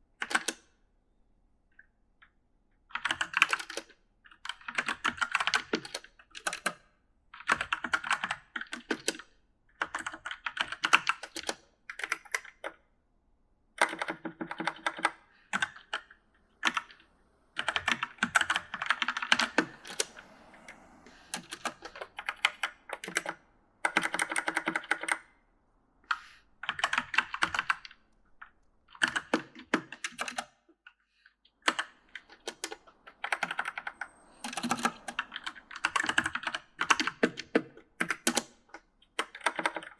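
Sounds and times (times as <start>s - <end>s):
mechanical keyboard typing: 2.9s - 6.8s, 7.4s - 9.2s, 9.8s - 12.8s, 13.8s - 20.3s, 21.3s - 25.2s, 26.1s - 28.0s, 28.9s - 30.5s, 31.6s - 38.6s, 39.2s - 39.9s.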